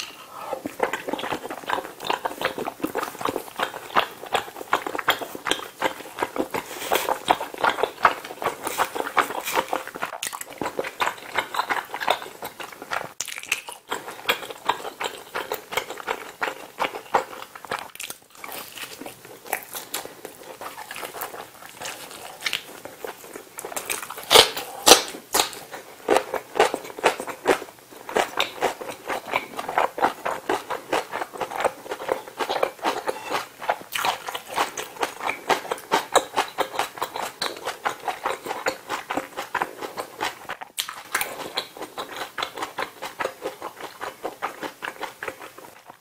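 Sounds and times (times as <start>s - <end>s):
wet chewing: 0.0s - 46.0s
crunching bites into fried chicken: 12.9s - 14.8s.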